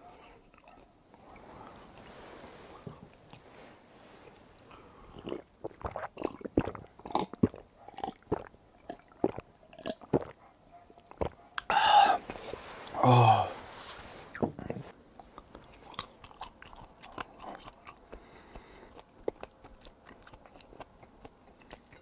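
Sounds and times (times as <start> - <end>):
wet chewing smacks: 11.0 - 11.7, 15.3 - 22.0.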